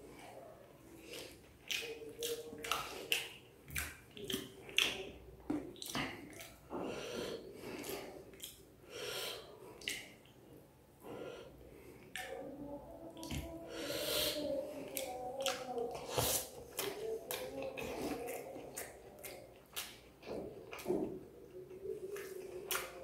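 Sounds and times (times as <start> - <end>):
wet chewing and lip smacks: 1.0 - 6.8, 7.7 - 8.8, 9.8 - 10.4, 12.0 - 12.4, 14.9 - 23.0.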